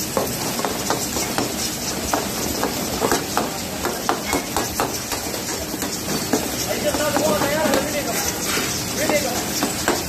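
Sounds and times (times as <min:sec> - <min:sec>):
food sizzling in a wok: 0:00.0 - 0:10.0
metal ladle scraping pan: 0:04.3 - 0:10.0.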